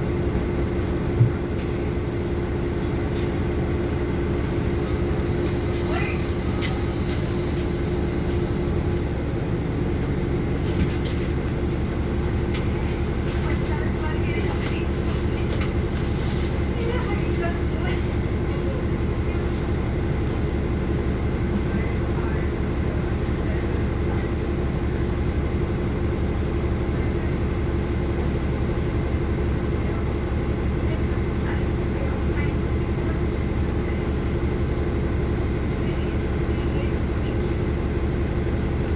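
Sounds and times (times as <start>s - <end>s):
bus engine and road rumble: 0.0s - 38.9s
constant hum: 0.0s - 38.9s.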